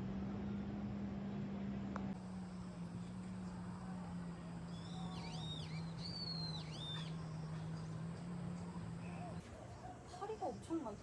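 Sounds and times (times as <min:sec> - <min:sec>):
steady low hum: 0:00.0 - 0:11.0
bird whistled calls: 0:04.7 - 0:07.9.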